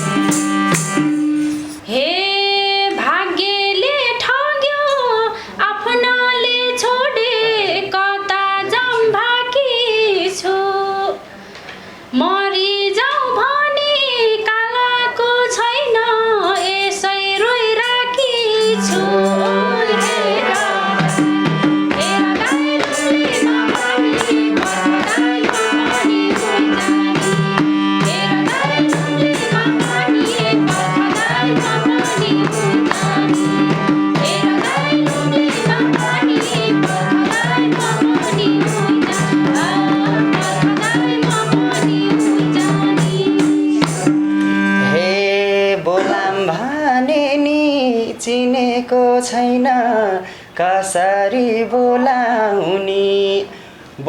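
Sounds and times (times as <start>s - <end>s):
folk melody instrument: 0.0s - 1.8s, 18.0s - 45.3s.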